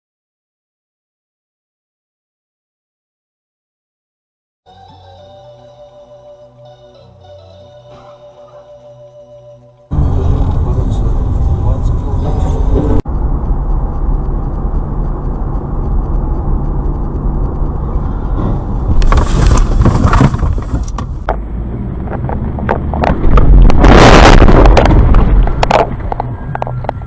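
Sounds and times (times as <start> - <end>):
car engine and tyres rumbling: 9.8 - 27.0
vehicle collision crunching: 18.0 - 27.0
burst of noise: 23.3 - 25.3.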